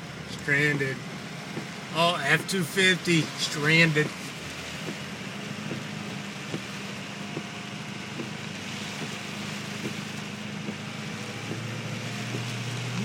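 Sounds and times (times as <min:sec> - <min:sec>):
heavy rain on a car: 0:00.0 - 0:13.0
low engine hum: 0:00.0 - 0:13.0
wet road noise: 0:00.0 - 0:13.0
light taps: 0:01.5 - 0:01.8, 0:04.0 - 0:13.0.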